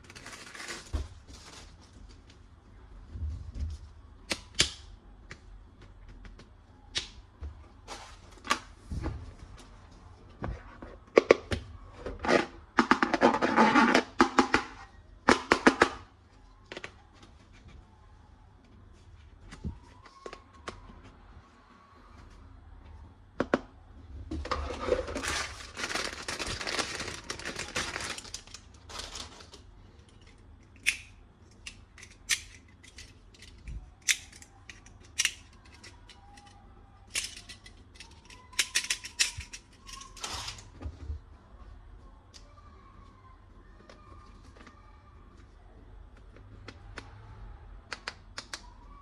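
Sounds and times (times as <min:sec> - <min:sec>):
plastic toy gun rattling: 0:25.1 - 0:29.6, 0:30.2 - 0:40.6.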